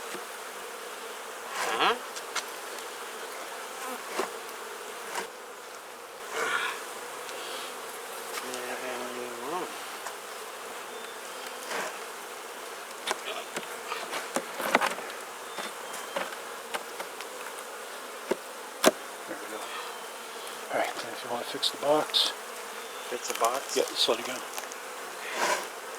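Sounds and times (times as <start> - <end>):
bees buzzing: 0.0 - 25.9.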